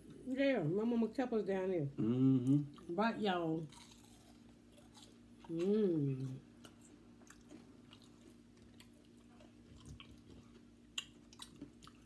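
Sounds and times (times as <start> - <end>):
quiet chewing: 3.7 - 12.0.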